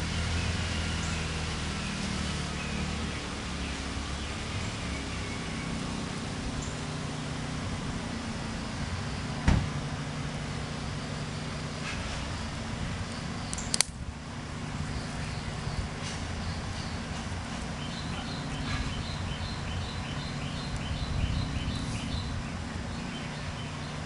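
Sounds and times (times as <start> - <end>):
songbird chirping: 0.0 - 24.0
sharp click: 13.5 - 14.0.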